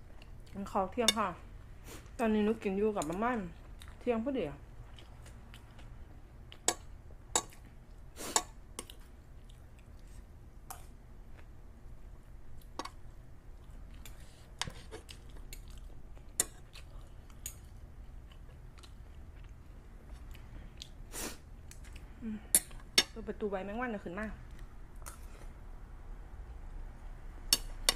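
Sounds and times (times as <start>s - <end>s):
person chewing: 3.6s - 4.0s, 4.8s - 11.6s, 12.5s - 22.9s, 24.5s - 25.6s.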